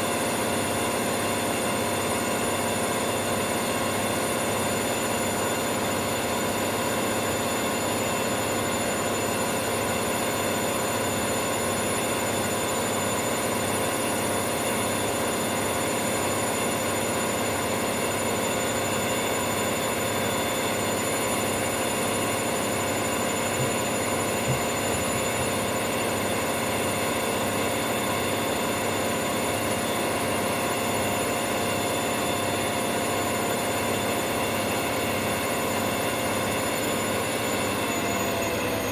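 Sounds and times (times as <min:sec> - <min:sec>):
washing machine drum spinning: 0:22.8 - 0:26.5.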